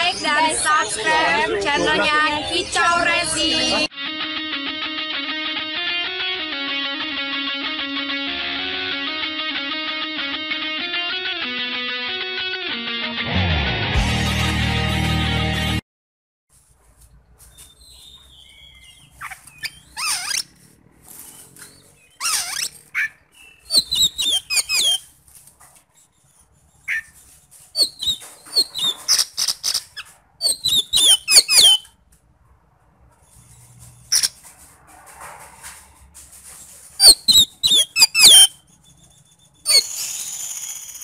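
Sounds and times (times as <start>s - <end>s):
bird singing: 17.5s - 20.6s, 21.2s - 25.1s, 27.8s - 31.9s, 37.0s - 41.0s.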